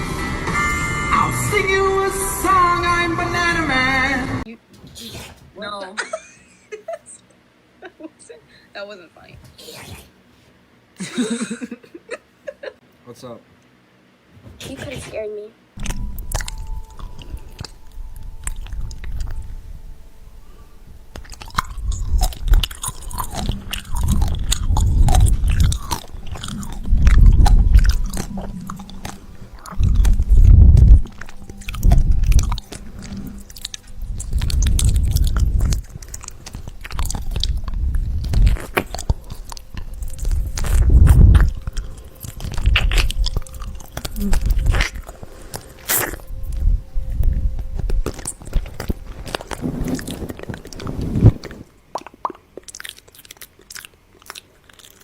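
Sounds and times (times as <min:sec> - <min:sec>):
crunchy chewing: 0:15.8 - 0:55.0
wet mouth clicks: 0:21.1 - 0:46.6, 0:51.9 - 0:55.0.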